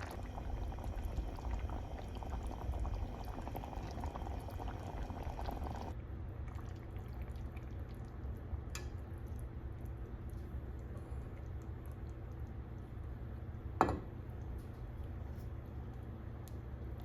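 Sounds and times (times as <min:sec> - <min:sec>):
low hum: 0:00.0 - 0:05.9
water pouring: 0:00.0 - 0:08.2.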